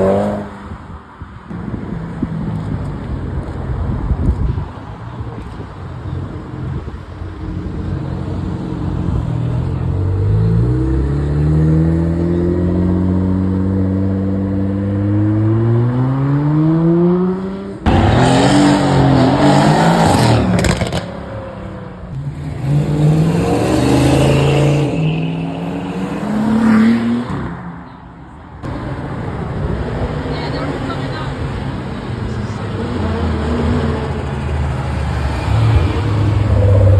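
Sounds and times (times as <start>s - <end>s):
car engine accelerating: 7.6s - 27.5s
car revving up: 7.8s - 27.5s.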